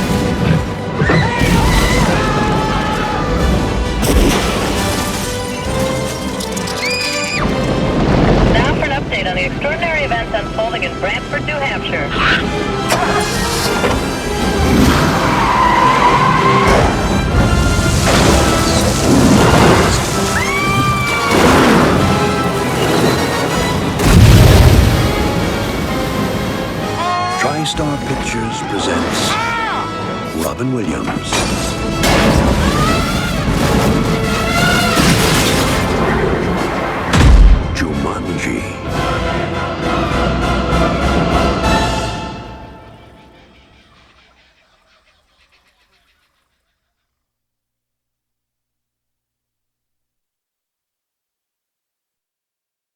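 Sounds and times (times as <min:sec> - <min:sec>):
loud crashes and booms: 0:00.0 - 0:10.1, 0:16.4 - 0:27.0, 0:31.2 - 0:38.0
dramatic music: 0:00.0 - 0:44.3.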